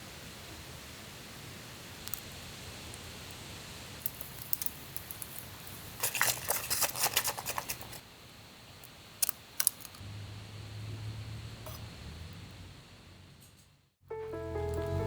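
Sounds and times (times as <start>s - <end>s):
steady hiss: 0.0s - 11.1s
camping gear clicking and crinkling: 5.9s - 8.0s
background music: 14.1s - 15.0s.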